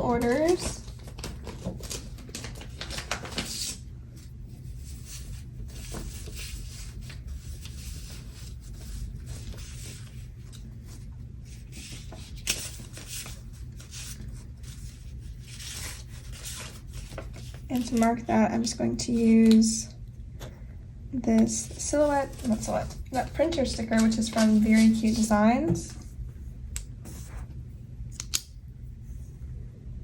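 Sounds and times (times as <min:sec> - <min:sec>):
paper rustling and tapping: 0:00.0 - 0:03.8, 0:19.4 - 0:19.8, 0:21.4 - 0:26.0.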